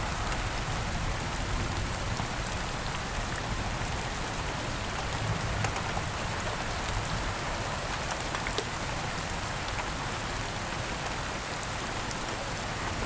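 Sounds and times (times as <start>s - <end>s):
rain drop ticks: 7.8s - 8.8s.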